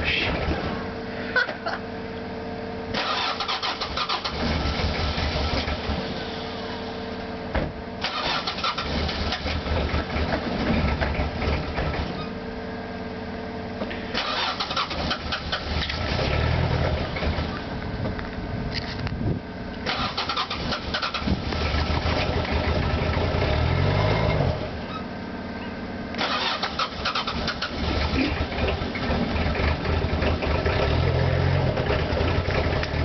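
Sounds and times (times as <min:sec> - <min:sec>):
diesel engine cranking: 0:02.9 - 0:07.0, 0:08.0 - 0:12.4, 0:13.9 - 0:19.2, 0:19.8 - 0:33.0.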